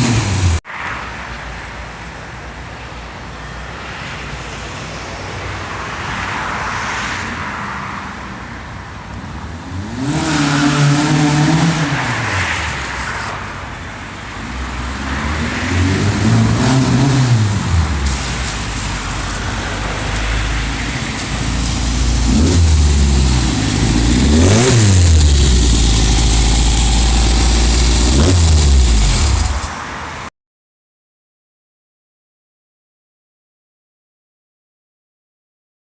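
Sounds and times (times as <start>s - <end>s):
car engine revving: 0.0s - 0.6s, 9.7s - 12.8s, 14.4s - 29.8s.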